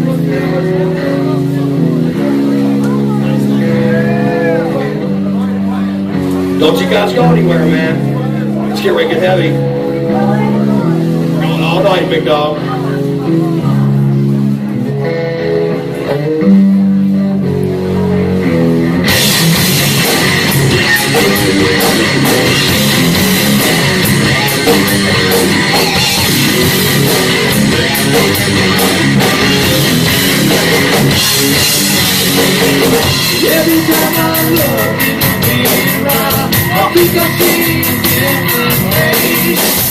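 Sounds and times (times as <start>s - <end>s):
distorted electric guitar riff: 0.0s - 39.9s
heavy metal band playing: 0.0s - 39.9s.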